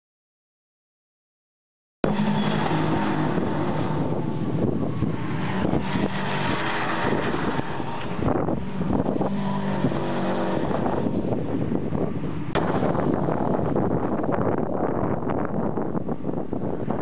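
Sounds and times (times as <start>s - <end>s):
racing car engines passing: 2.0s - 14.2s.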